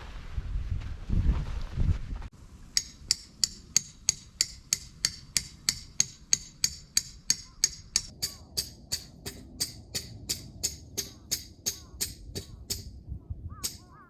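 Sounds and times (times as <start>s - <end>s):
wind rumble on microphone: 0.0s - 2.7s, 7.0s - 14.0s
hammer striking tent peg: 2.8s - 13.0s, 13.6s - 13.9s.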